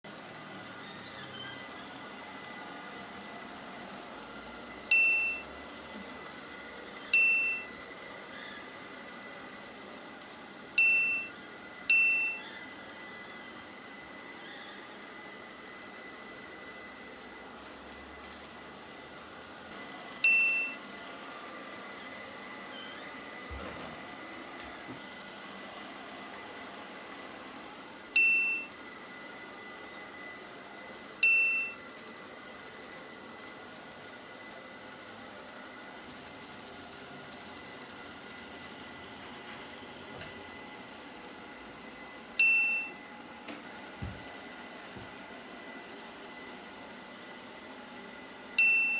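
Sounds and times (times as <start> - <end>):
bright chime ding: 4.9 - 5.4, 7.2 - 7.7, 10.8 - 11.3, 11.9 - 12.4, 20.2 - 20.8, 28.2 - 28.7, 31.2 - 31.8, 42.4 - 43.0, 48.6 - 48.9.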